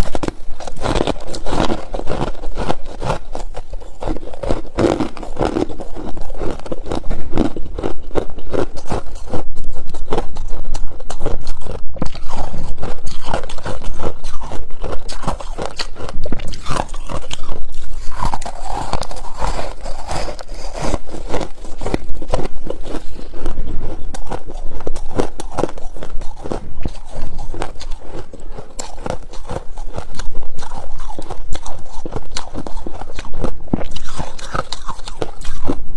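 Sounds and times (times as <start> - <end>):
chewing crunchy frost: 0.0 - 35.9.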